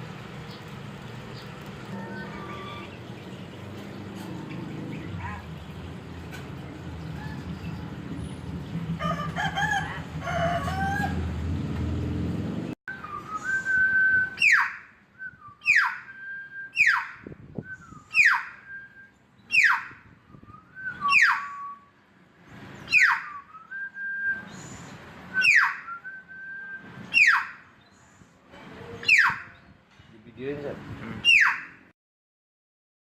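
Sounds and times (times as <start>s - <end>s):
myna whistle with downward sweep: 12.9s - 14.6s, 15.2s - 17.0s, 20.3s - 21.9s, 23.0s - 24.7s, 25.3s - 26.9s.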